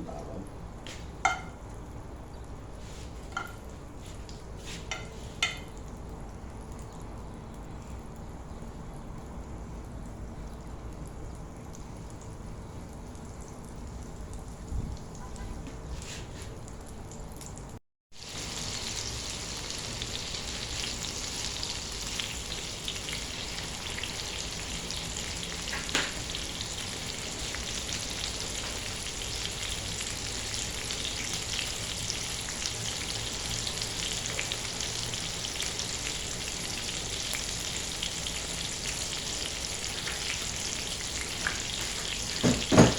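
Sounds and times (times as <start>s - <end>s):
chicken sizzling in a pan: 18.2s - 42.9s.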